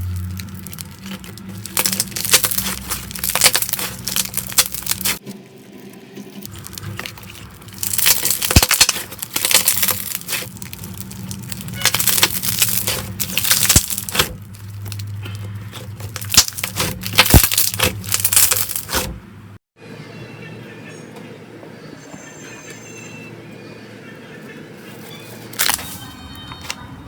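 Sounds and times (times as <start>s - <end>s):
slime squeezed crackling: 0.0s - 5.2s, 6.4s - 19.1s, 25.5s - 26.0s.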